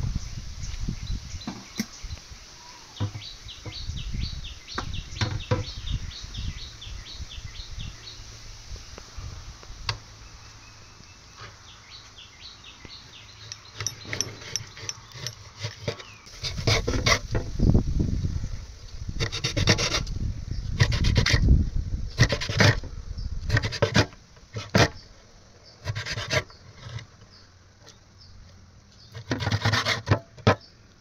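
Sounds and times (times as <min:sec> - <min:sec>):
bird chirping rapidly: 0:00.1 - 0:08.3, 0:10.2 - 0:16.3
loud rough scraping: 0:13.7 - 0:17.6, 0:19.2 - 0:20.1, 0:20.7 - 0:25.0, 0:25.8 - 0:27.1, 0:29.1 - 0:30.6.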